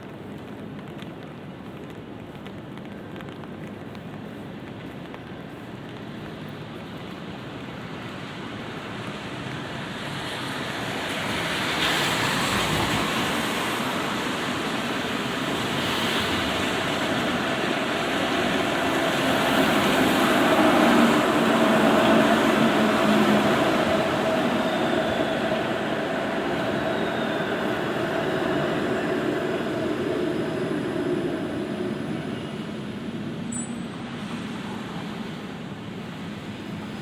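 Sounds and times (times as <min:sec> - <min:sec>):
tyres hissing on wet road: 0:07.8 - 0:25.4.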